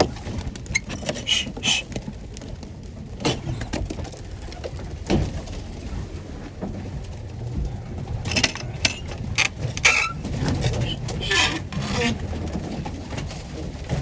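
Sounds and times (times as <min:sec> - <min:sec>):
pigeons cooing: 0:00.0 - 0:02.2, 0:08.1 - 0:12.5.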